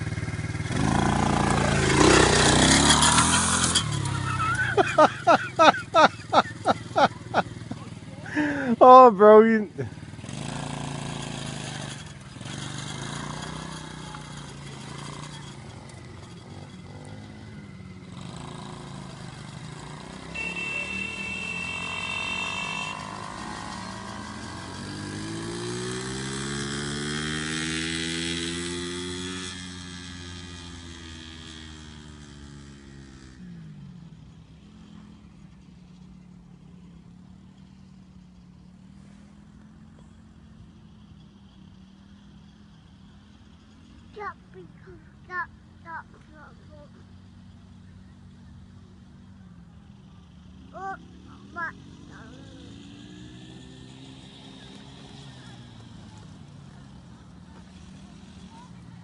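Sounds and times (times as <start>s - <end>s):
engine revving: 0.0s - 7.7s, 8.3s - 33.6s, 50.4s - 59.0s
small petrol engines running: 0.0s - 59.0s.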